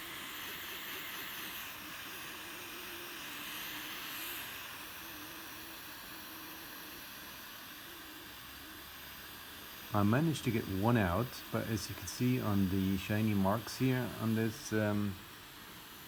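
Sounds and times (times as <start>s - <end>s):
torch lighter flame hissing: 0.0s - 16.0s.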